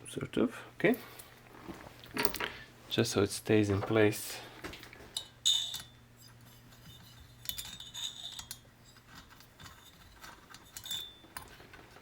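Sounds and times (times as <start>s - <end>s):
faint steady hum: 0.0s - 12.0s
metal parts clinking and rattling: 5.2s - 12.0s.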